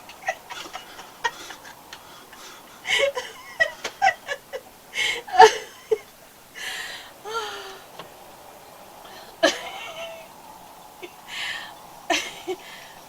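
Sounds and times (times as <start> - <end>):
woman giggling: 0.1 - 6.1, 9.1 - 10.3, 12.1 - 12.8
breathy gasp of laughter: 0.4 - 6.0.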